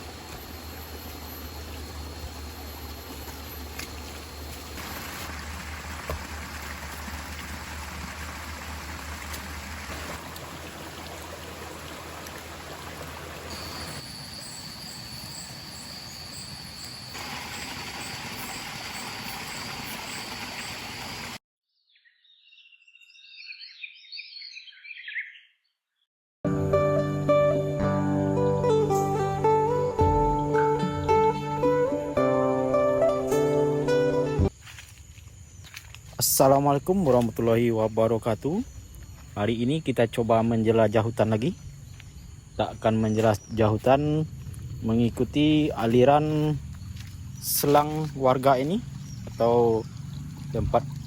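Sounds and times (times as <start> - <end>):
high insect whine: 0.0 - 5.3, 13.5 - 21.3, 43.6 - 51.0
stream running: 0.0 - 21.4, 43.1 - 51.0
bird calls: 21.8 - 26.0, 45.9 - 51.0
music: 26.5 - 34.5.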